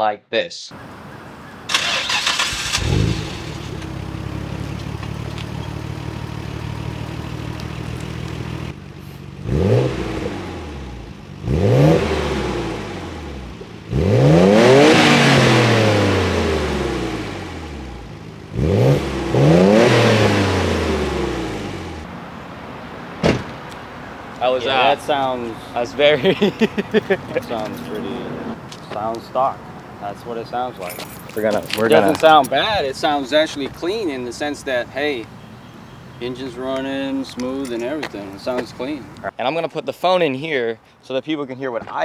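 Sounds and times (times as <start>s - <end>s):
car engine idling and revving: 0.7s - 39.3s.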